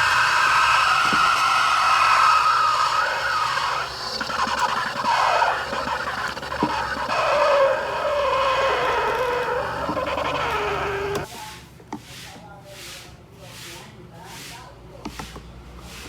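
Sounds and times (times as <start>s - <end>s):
steam wand frothing milk: 0.0s - 11.3s.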